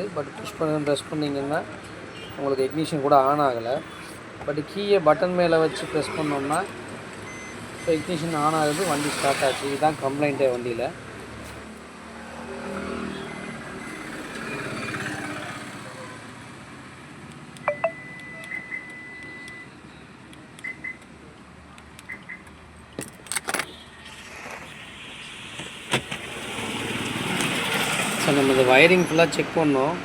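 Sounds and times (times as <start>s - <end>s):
electronic beeps: 17.6s - 19.7s.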